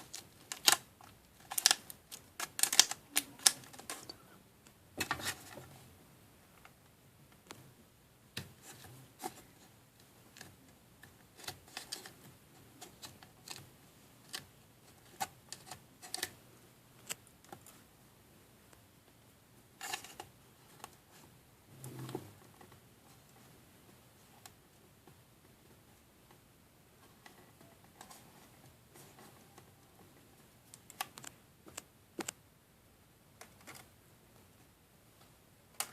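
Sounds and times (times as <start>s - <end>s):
plastic pieces clicking: 0.0s - 4.1s.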